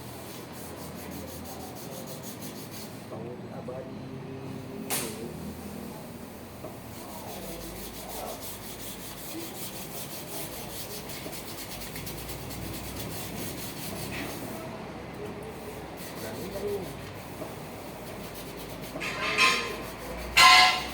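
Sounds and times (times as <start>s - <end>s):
scrubbing on metal: 6.9s - 14.5s, 17.6s - 20.9s.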